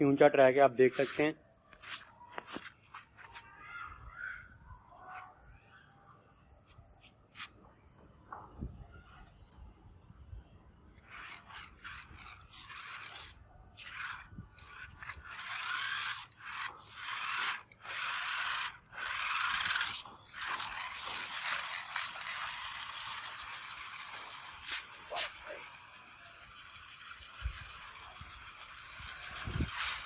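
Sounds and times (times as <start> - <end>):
toy electric motor and gears whirring: 8.6 - 9.7, 10.8 - 30.0.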